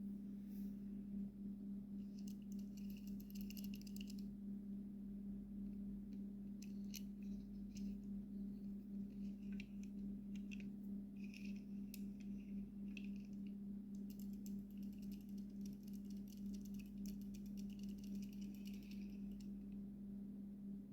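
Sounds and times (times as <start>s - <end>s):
toy cars clicking and rattling: 2.2s - 4.2s, 14.0s - 19.4s.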